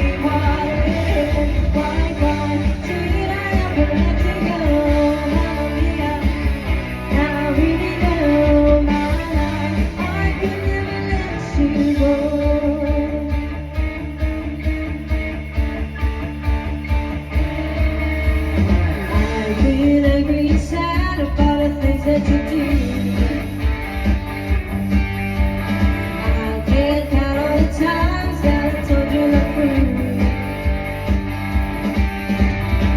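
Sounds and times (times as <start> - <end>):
person singing: 0.0 - 13.9, 19.1 - 23.8, 26.2 - 30.8
bass line: 0.0 - 32.9
guitar: 0.0 - 32.9
steady drum beat: 0.0 - 32.9.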